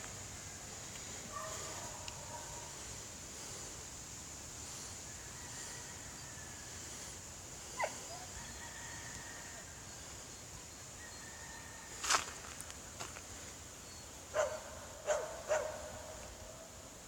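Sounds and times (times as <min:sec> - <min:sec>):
faint high hiss: 0:00.0 - 0:17.0
dog barking: 0:01.3 - 0:02.7, 0:07.8 - 0:08.0, 0:14.3 - 0:16.2.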